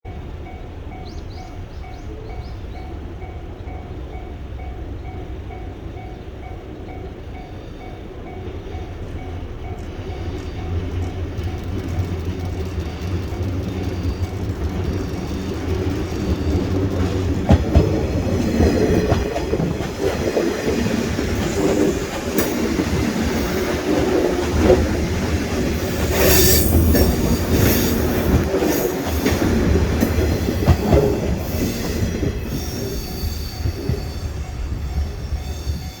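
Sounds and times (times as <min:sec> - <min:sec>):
electric train humming: 0:00.1 - 0:36.0
wheels clattering over rail joints: 0:09.8 - 0:36.0
level crossing warning bell: 0:32.4 - 0:36.0.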